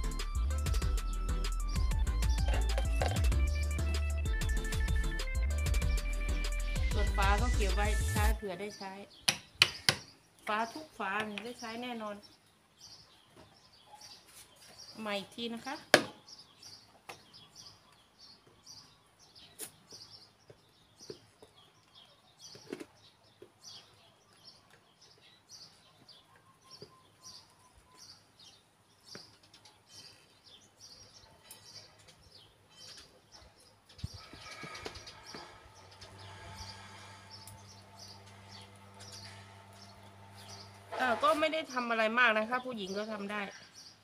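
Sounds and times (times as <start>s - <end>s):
small bird chirping: 8.6s - 41.1s
low electrical hum: 36.1s - 41.2s.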